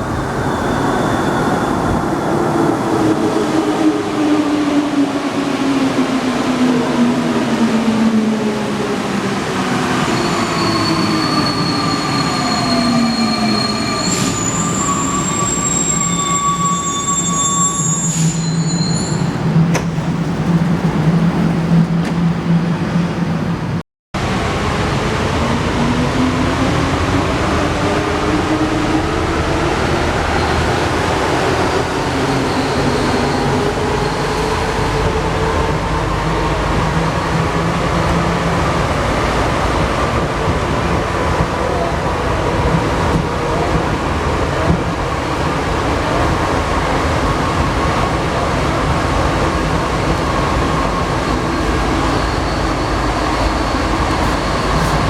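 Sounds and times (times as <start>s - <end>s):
wheels squealing: 49.4s - 55.0s.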